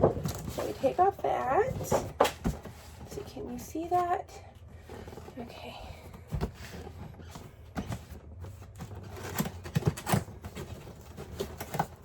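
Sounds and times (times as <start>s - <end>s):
cardboard packaging rustling: 6.1s - 12.0s.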